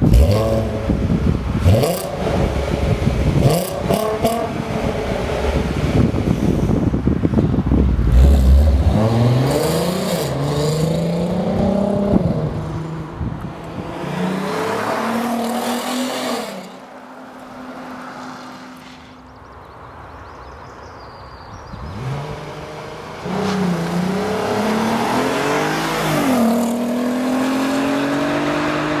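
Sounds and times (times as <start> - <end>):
car engine accelerating through gears: 21.8 - 29.0.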